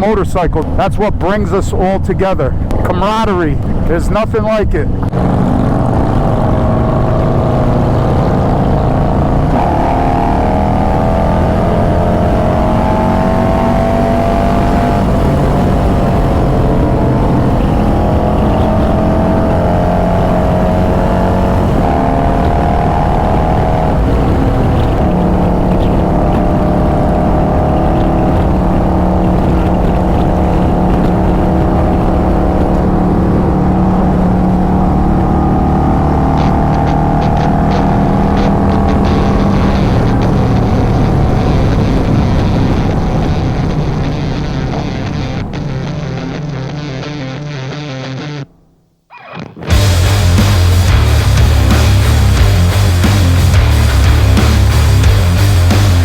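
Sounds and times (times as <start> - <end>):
road and wind rumble: 0.0 - 47.4, 49.7 - 56.0
motorcycle engines running: 4.9 - 46.3, 49.7 - 56.0.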